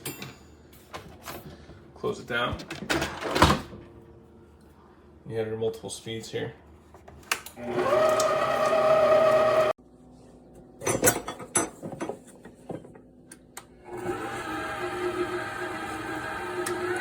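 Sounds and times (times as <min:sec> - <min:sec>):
stand mixer motor whine: 0:07.6 - 0:09.8, 0:13.8 - 0:17.0.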